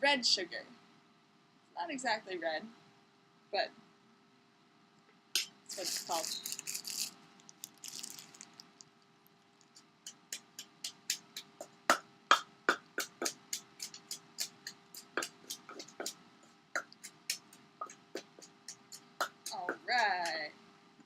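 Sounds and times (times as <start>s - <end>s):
pestle pounding in a mortar: 10.1s - 16.2s, 16.8s - 20.4s.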